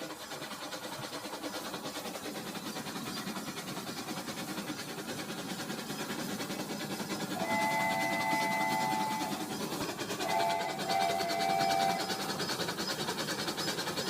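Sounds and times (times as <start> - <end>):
toy train motor rattling: 0.0 - 14.0.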